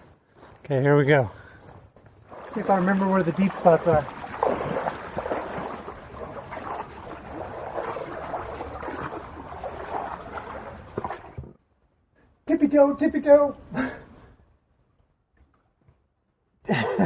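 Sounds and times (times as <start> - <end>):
water sloshing around wading legs: 2.0 - 11.6.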